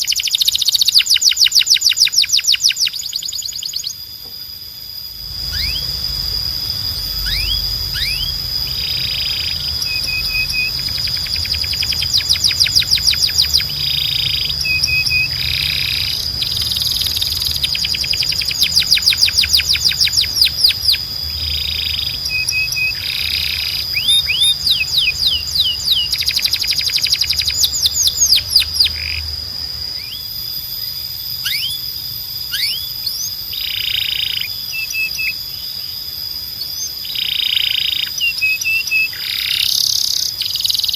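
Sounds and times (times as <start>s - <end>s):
canary singing: 0.0s - 4.1s, 5.2s - 36.0s, 36.6s - 40.9s
steady high tone: 4.0s - 29.1s
low hum: 4.1s - 30.8s.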